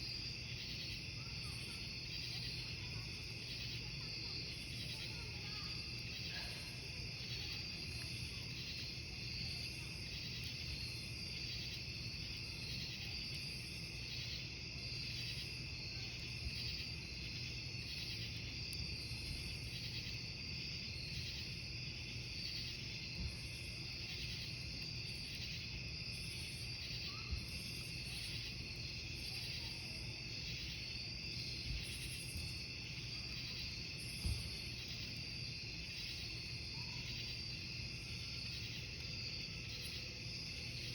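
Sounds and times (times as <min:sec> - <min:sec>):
campfire crackling: 0:00.0 - 0:40.9
crickets chirping: 0:00.0 - 0:40.9.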